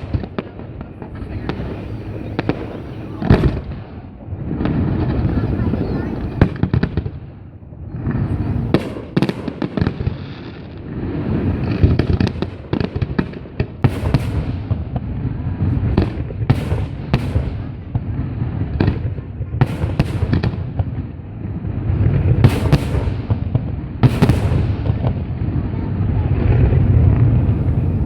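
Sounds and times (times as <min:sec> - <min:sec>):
fireworks cracks and bangs: 0:00.0 - 0:28.0
low rumble: 0:26.1 - 0:28.0.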